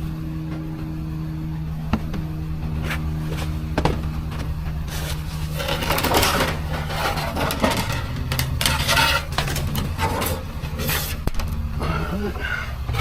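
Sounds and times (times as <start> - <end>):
vehicle engine humming: 0.0 - 13.0
hard objects clattering and rattling: 3.8 - 11.6.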